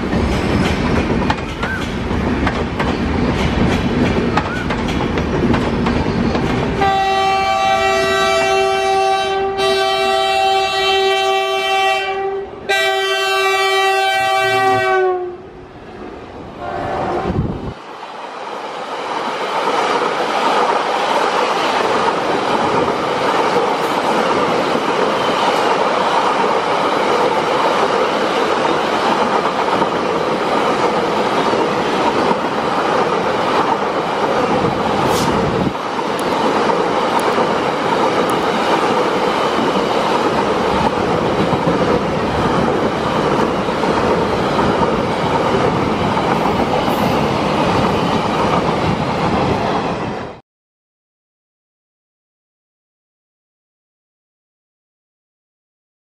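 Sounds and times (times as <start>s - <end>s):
steel wheels on rails: 0.0s - 7.1s, 17.3s - 50.4s.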